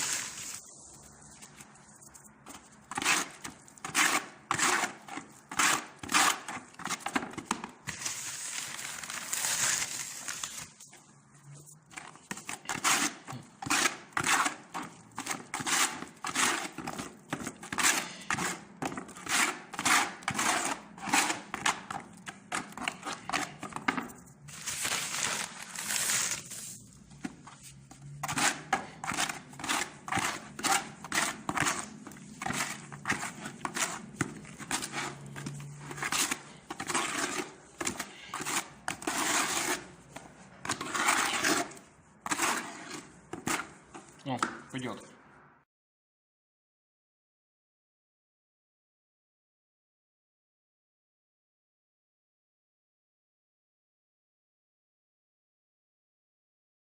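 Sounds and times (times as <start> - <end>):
trowel scraping wet adhesive: 1.4 - 8.5, 11.9 - 24.2, 26.0 - 44.2.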